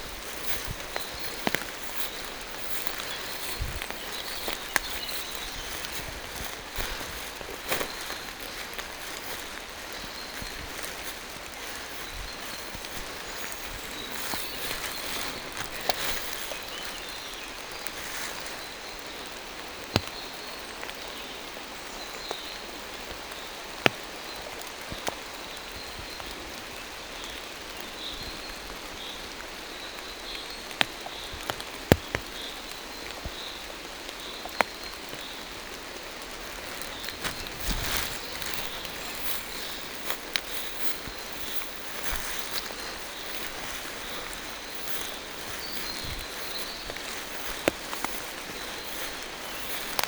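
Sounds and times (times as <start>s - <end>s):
faint high bird chirping: 0.0s - 18.8s, 36.4s - 50.0s
footsteps on wet ground: 0.0s - 26.6s, 29.4s - 50.0s
rain falling through trees: 0.0s - 50.0s.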